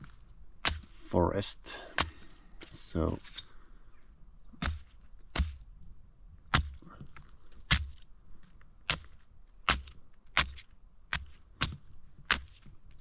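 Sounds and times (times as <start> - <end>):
axe chopping apples: 0.0 - 3.4, 4.6 - 5.7, 6.5 - 8.0, 8.8 - 12.7.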